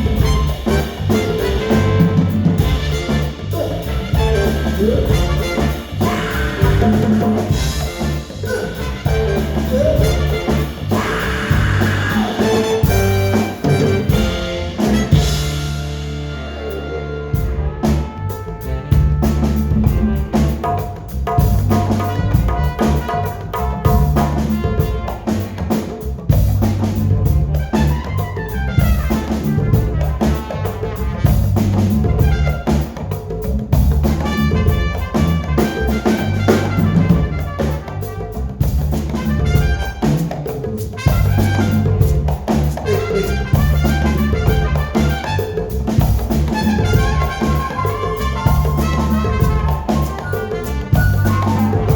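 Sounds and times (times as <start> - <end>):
repeating bass line: 0.0 - 25.0, 41.0 - 51.9
drum kit: 0.0 - 51.9
horn lines: 0.0 - 51.9.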